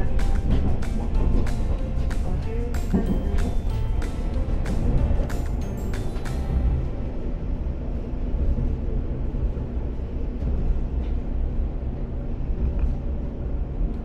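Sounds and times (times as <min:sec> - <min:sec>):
railcar engine and wheels rumbling: 0:00.0 - 0:14.0.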